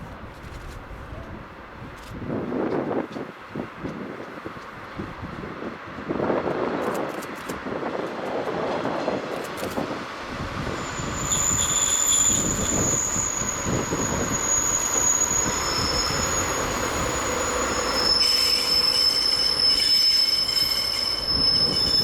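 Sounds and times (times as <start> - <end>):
train rolling on rails: 0.0 - 22.0
wheel squeal: 10.6 - 22.0.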